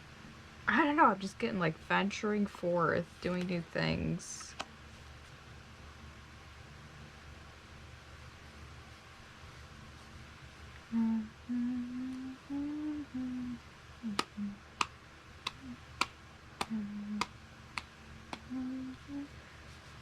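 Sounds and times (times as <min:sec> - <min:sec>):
woman humming a slow tune: 0:10.9 - 0:14.7, 0:15.5 - 0:15.9, 0:16.6 - 0:17.3, 0:18.4 - 0:19.4
sharp clicks keeping a beat: 0:14.1 - 0:19.0.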